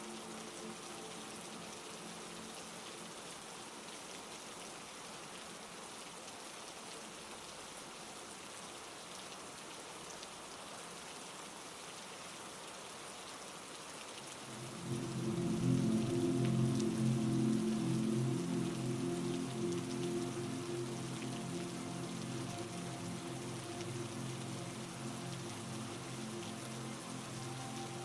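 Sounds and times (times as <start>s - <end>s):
heavy rain falling: 0.0s - 28.0s.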